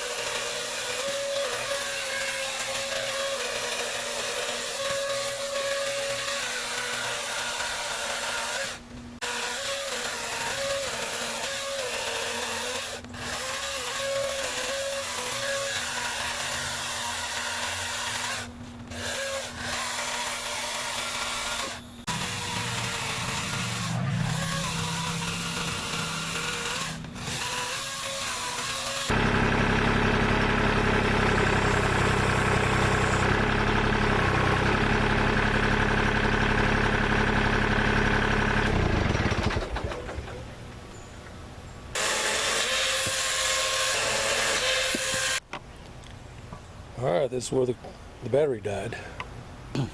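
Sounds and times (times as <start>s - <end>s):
chainsaw cutting wood: 0.0s - 40.4s, 42.0s - 45.4s.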